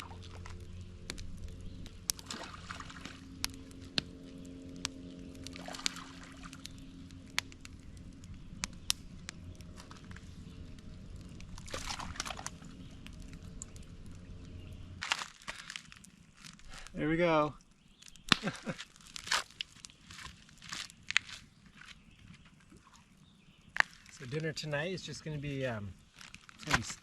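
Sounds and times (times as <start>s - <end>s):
water lapping and sloshing: 0.0s - 16.6s, 22.5s - 24.2s
water splashes: 2.0s - 7.8s, 11.4s - 13.4s.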